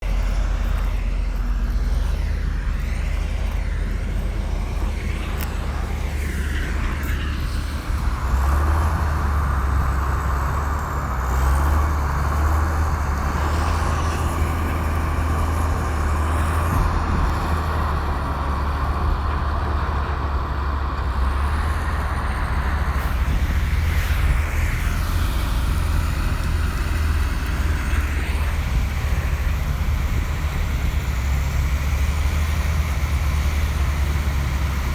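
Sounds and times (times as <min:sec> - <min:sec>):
harsh high-pitched machine noise: 0:00.0 - 0:18.6
bulldozer diesel engine droning: 0:00.0 - 0:34.9.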